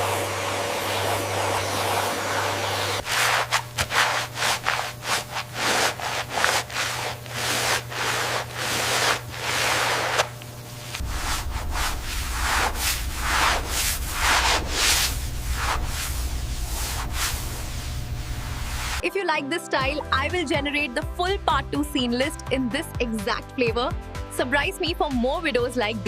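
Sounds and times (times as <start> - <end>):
rhythmic rubbing strokes: 0.0 - 19.0
steady low hum: 0.0 - 19.0.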